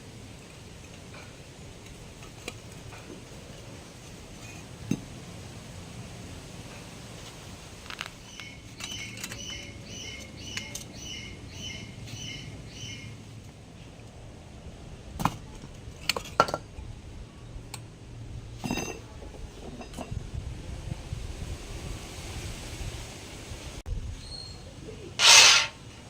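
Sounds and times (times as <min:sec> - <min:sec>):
bird chirping: 0:08.2 - 0:13.2, 0:24.2 - 0:25.0.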